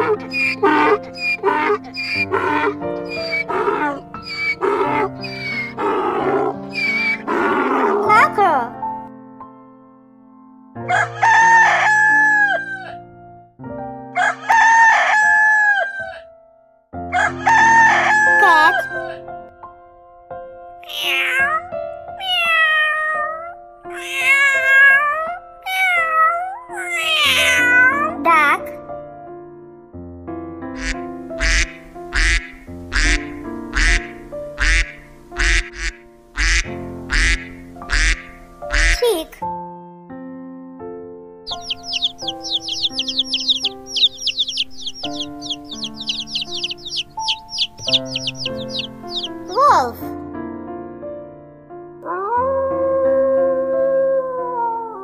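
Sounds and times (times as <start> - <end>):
duck quacking: 0.0 - 8.2, 30.8 - 39.2, 41.5 - 49.6
background music with held notes: 0.0 - 55.0
rooster crowing: 10.9 - 13.0, 14.2 - 16.2, 17.1 - 19.0.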